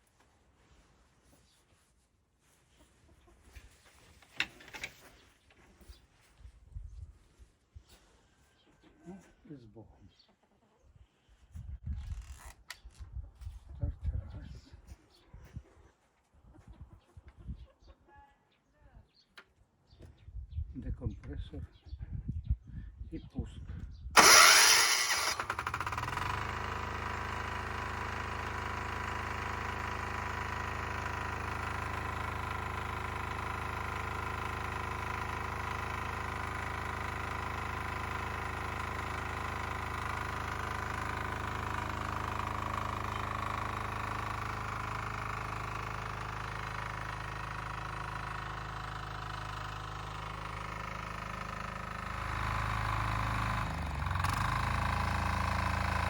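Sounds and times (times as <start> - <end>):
diesel tractor engine starting: 24.2 - 56.0.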